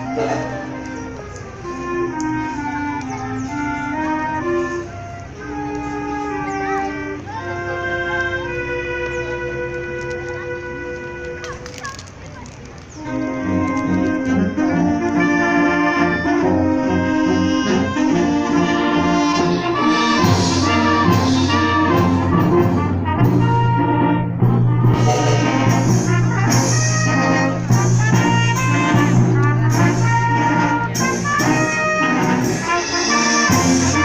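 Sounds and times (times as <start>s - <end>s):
brass playing held chords: 0.0s - 11.6s, 13.0s - 34.0s
percussion strokes: 16.4s - 34.0s
low bass note: 17.4s - 30.8s.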